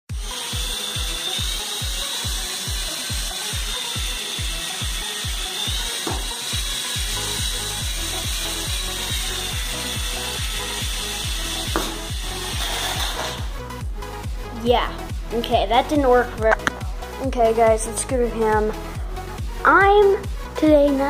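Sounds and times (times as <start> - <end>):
toy helicopter motor whine: 0.1 - 13.6
rotor thumping: 5.8 - 7.6, 11.5 - 13.6.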